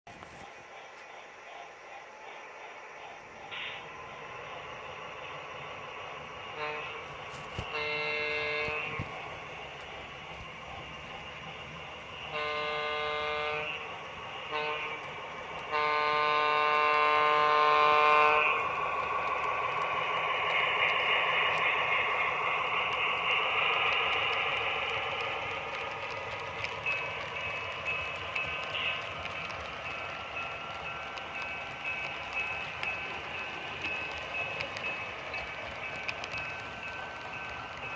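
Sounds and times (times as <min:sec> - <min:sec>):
model train running on track: 0:00.1 - 0:37.9
model locomotive horn blasts: 0:06.5 - 0:09.0, 0:12.3 - 0:13.8, 0:14.5 - 0:15.1, 0:15.7 - 0:18.6.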